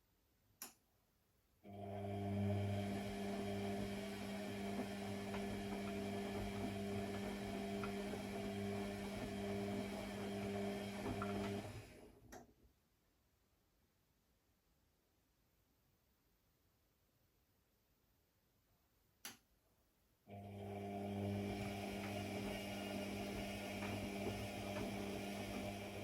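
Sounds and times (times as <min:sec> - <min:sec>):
electrical device humming: 0:01.7 - 0:12.1, 0:20.3 - 0:26.0.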